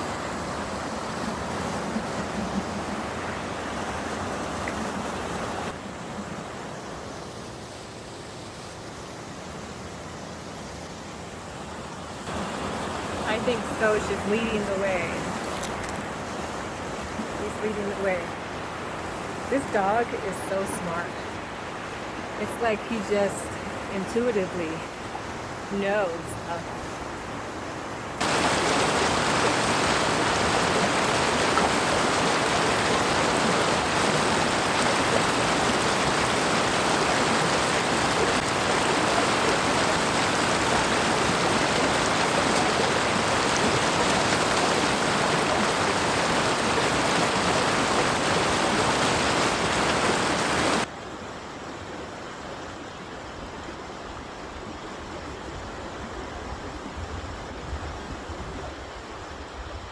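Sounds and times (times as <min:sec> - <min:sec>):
loud hiss of water: 0:28.2 - 0:50.9.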